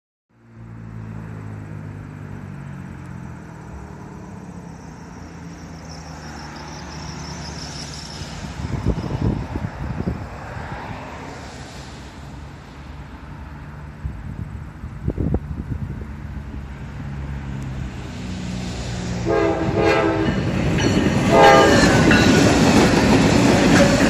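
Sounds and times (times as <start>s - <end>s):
diesel locomotive rumble: 1.1s - 24.0s
wind buffeting the microphone: 8.4s - 11.0s, 13.9s - 16.8s.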